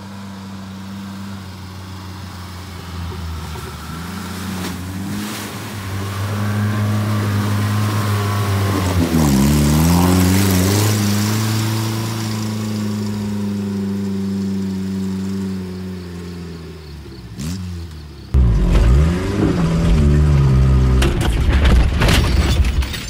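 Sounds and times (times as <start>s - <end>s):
off-road vehicle engine revving: 0.0s - 22.2s
engine rumbling inside cab: 0.0s - 23.0s
knocks and rattles: 18.4s - 23.0s.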